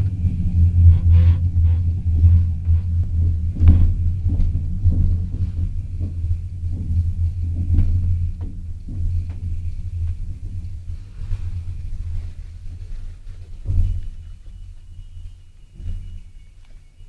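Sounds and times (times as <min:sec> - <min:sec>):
train rumbling on rails: 0:00.0 - 0:17.0
knocks and clacks of wheels: 0:00.8 - 0:10.8.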